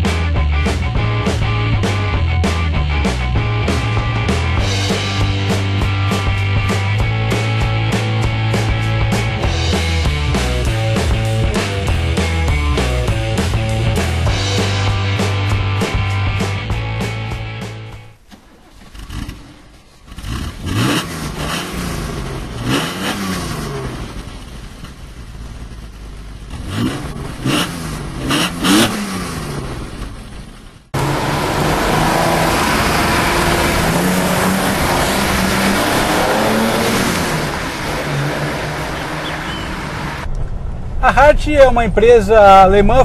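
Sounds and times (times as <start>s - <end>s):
car engine revving: 0.0s - 41.0s
car engine driving: 0.0s - 43.0s
road noise: 0.0s - 43.0s.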